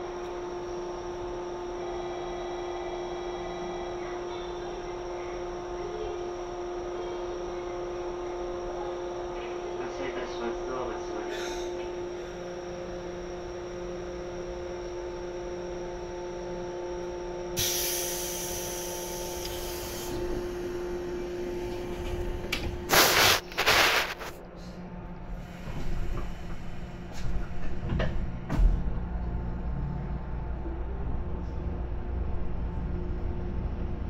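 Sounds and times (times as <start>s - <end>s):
electric train hum: 0.0s - 34.0s
hiss: 17.6s - 20.1s, 22.9s - 24.2s
loud brief noises: 22.9s - 24.3s.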